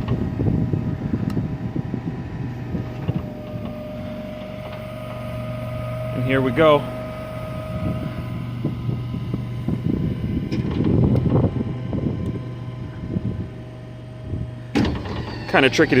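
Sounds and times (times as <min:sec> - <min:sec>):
generator hum: 0:00.0 - 0:16.0
knocks and rattles of boom: 0:08.6 - 0:12.2, 0:14.2 - 0:15.4.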